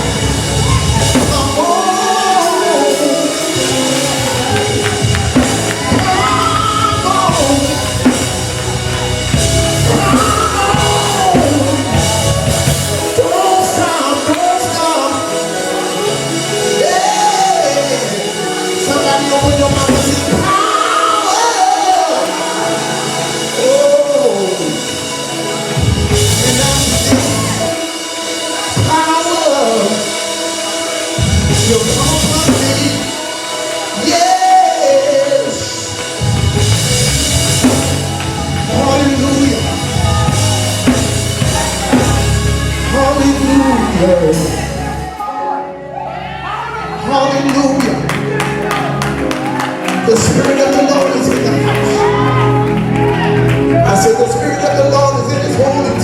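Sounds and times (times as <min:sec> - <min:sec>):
people singing: 0:00.0 - 0:08.5, 0:09.8 - 0:24.8
bass guitar: 0:00.0 - 0:14.2, 0:18.8 - 0:20.6, 0:25.6 - 0:27.8, 0:31.2 - 0:33.2, 0:34.8 - 0:45.2, 0:47.3 - 0:56.0
drum kit: 0:00.0 - 0:45.3
sustained organ chords: 0:00.0 - 0:45.9.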